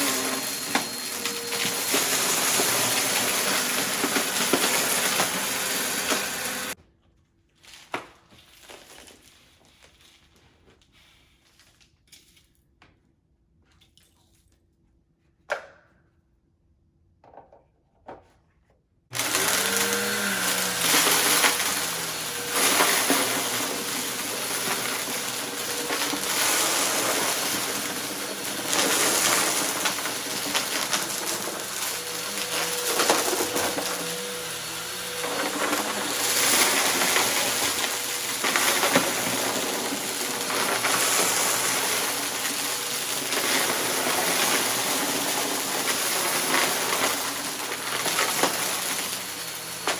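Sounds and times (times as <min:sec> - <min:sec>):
debris rattling in vacuum: 0:00.0 - 0:06.8, 0:19.1 - 0:49.9
vacuum cleaner motor running: 0:00.0 - 0:06.8, 0:19.1 - 0:49.9.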